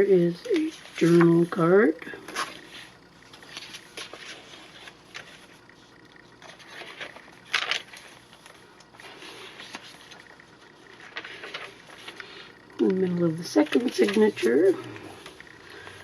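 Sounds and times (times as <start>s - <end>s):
paper rustling and scraping: 0.5s - 1.5s, 2.3s - 12.6s, 13.5s - 16.0s.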